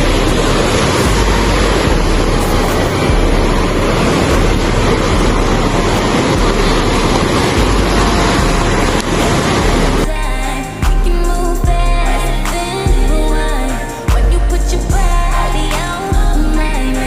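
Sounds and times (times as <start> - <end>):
wind buffeting microphone: 0.0 - 10.1
rush of water: 0.0 - 17.0.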